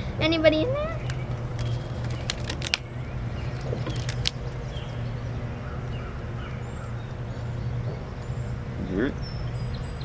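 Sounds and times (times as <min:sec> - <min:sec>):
birds chirping faintly: 0:00.0 - 0:10.0
rubber bands snapping: 0:01.0 - 0:04.5.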